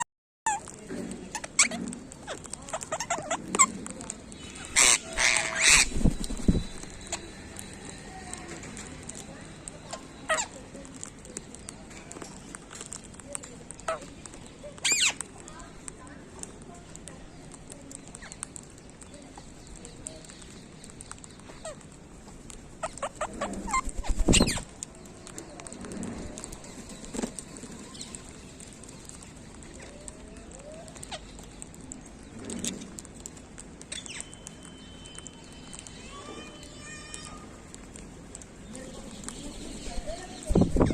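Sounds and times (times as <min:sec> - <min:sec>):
parakeets screeching: 0:00.5 - 0:11.6, 0:13.8 - 0:15.4, 0:22.7 - 0:24.7, 0:30.8 - 0:31.9, 0:39.1 - 0:40.9
parrots chattering: 0:00.5 - 0:11.6, 0:13.6 - 0:15.4, 0:17.9 - 0:24.8, 0:27.6 - 0:40.9
parrot squawks: 0:04.6 - 0:05.9.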